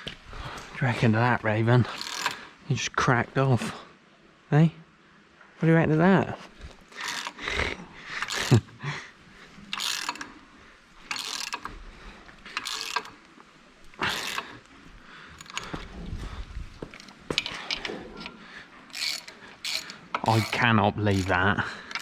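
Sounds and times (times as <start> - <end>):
ratchet spanner clicking: 1.9 - 2.4, 7.0 - 7.4, 8.2 - 8.6, 9.7 - 10.3, 11.1 - 11.7, 12.6 - 13.2, 14.0 - 14.5, 18.9 - 22.0.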